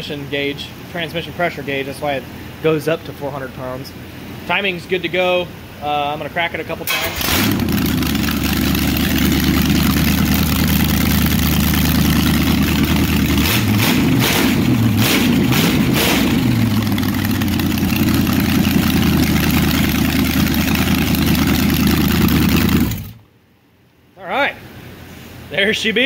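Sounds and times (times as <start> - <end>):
car engine idling and revving: 6.9 - 23.2.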